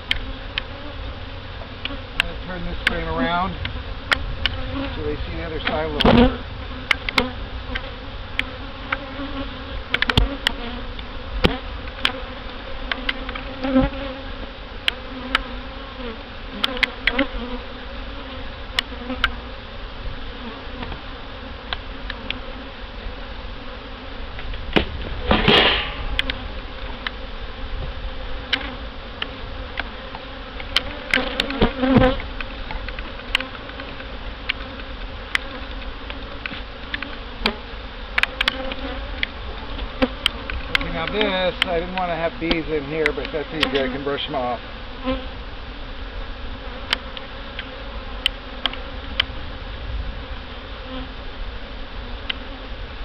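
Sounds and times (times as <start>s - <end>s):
bees buzzing: 0.0s - 53.0s
sharp clicks and knocks: 38.2s - 39.4s.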